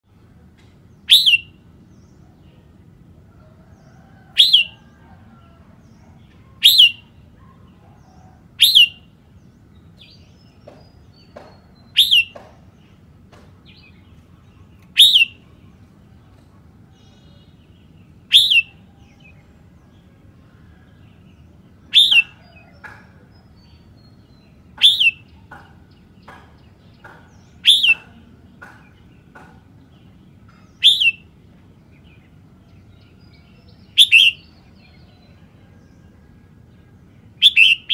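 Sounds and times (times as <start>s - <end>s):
soft bird chirps: 0.6s - 1.6s, 10.0s - 13.0s, 13.7s - 19.4s, 21.9s - 25.6s, 26.2s - 29.0s, 29.8s - 31.4s, 32.2s - 36.2s, 36.8s - 37.9s
bird sharp calls: 1.0s - 1.6s, 4.3s - 4.8s, 6.5s - 9.1s, 10.6s - 12.6s, 14.9s - 15.5s, 18.3s - 19.0s, 21.9s - 23.4s, 24.7s - 29.6s, 30.5s - 31.3s, 33.8s - 34.6s, 37.4s - 37.9s.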